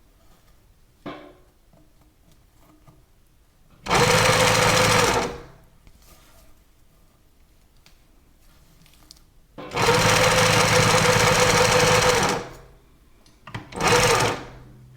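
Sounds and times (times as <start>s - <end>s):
sewing machine running: 3.9s - 5.5s, 9.7s - 12.7s, 13.7s - 14.7s.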